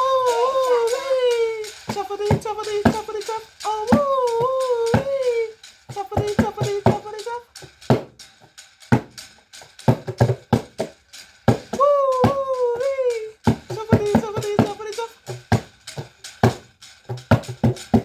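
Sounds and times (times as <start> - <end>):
person imitating train whistle: 0.0 - 2.7, 11.8 - 15.1
hand drum beaten in steady rhythm: 0.0 - 18.0
person chanting chuffing sounds: 0.0 - 18.0.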